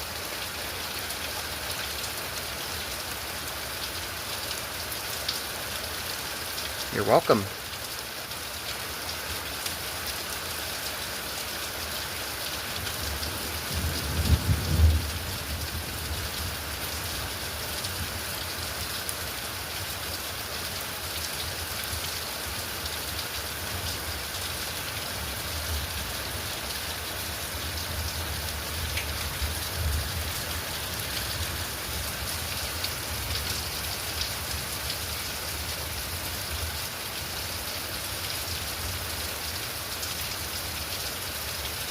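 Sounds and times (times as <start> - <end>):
steady rainfall: 0.0 - 41.9
low rumble of thunder: 13.4 - 16.6.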